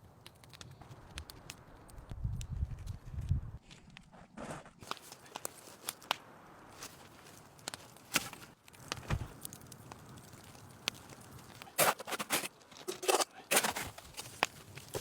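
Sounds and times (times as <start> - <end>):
branches crackling and tearing: 4.8 - 15.0
dry branches clicking: 4.8 - 15.0
dull thud: 9.0 - 9.3.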